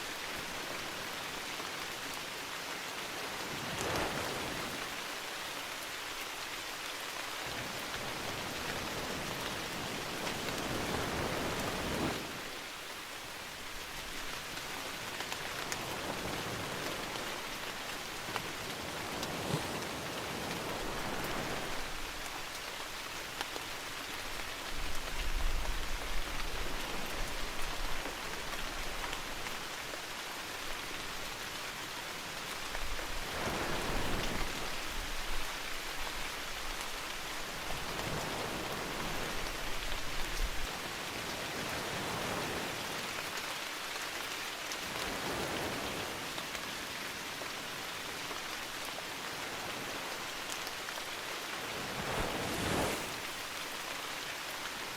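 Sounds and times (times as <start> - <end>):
heavy rain falling: 0.0 - 54.9
sea waves: 7.2 - 22.3, 30.9 - 43.4, 44.7 - 54.9.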